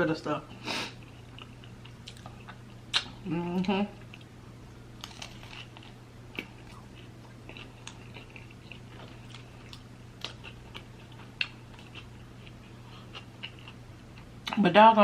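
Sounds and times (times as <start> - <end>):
steady low hum: 0.0 - 15.0
chewing food: 1.0 - 3.2, 5.0 - 14.6.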